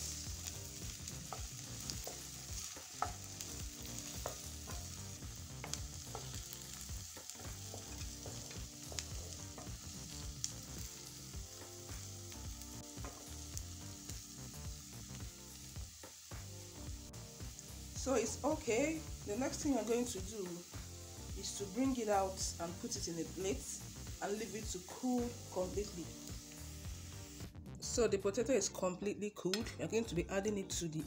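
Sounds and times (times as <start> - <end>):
potatoes sizzling in hot oil: 0.0 - 27.5
spatula clicking and scraping pan: 0.8 - 10.2.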